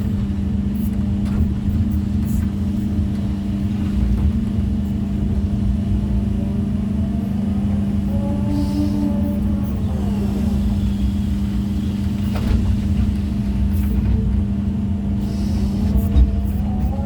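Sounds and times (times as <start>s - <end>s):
diesel engine running: 0.0s - 17.0s
hydraulic whine: 3.7s - 17.0s.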